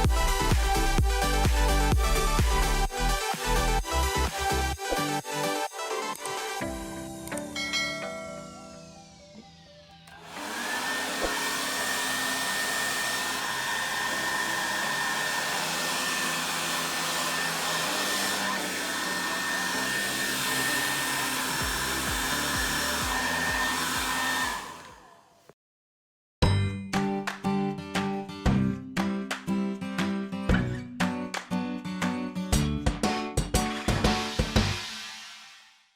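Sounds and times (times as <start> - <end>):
hair dryer running: 0.0 - 6.7, 10.1 - 25.4.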